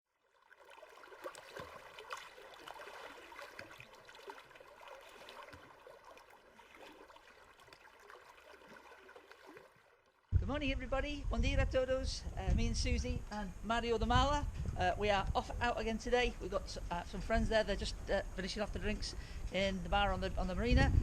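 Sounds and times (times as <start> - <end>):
faint trickling water: 0.1 - 10.4.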